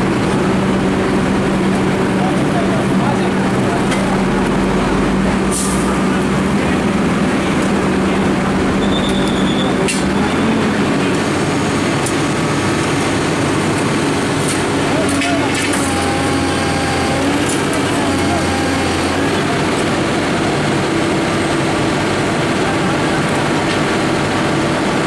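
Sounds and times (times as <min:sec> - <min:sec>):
diesel engine running: 0:00.0 - 0:25.0
people talking: 0:00.0 - 0:25.0.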